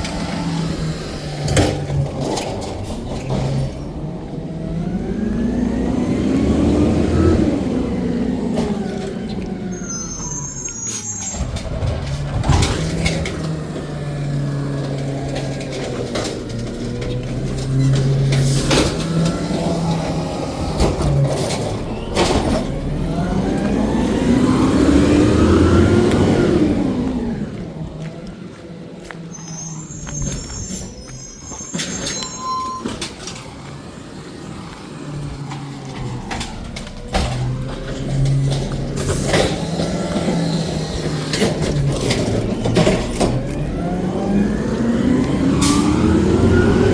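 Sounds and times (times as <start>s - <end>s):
garbage truck engine running: 0.0s - 46.9s
high squeal: 9.6s - 11.8s, 29.2s - 33.5s
knocks and clanks: 11.2s - 23.9s, 35.2s - 44.3s
loud clatter: 11.3s - 23.8s, 35.4s - 43.9s.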